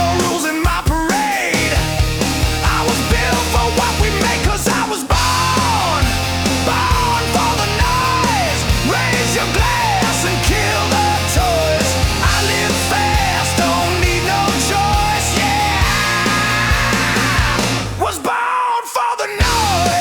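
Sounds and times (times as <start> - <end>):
hard rock music: 0.0 - 18.5, 19.2 - 20.0.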